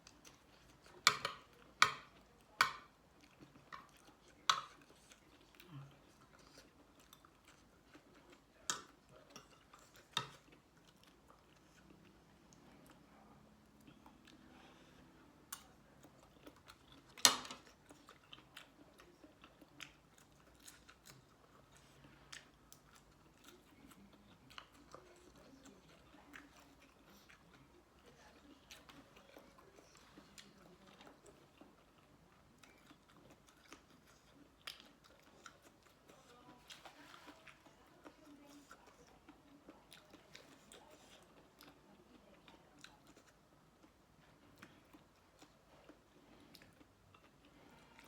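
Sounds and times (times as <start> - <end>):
person chewing crunchy food: 15.6 - 48.0.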